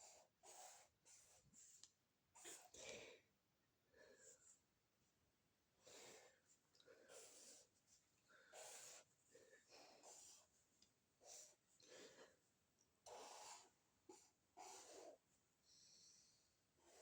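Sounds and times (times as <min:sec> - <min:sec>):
faint breathy puffs: 0:00.0 - 0:01.8, 0:05.8 - 0:12.5, 0:13.1 - 0:17.0.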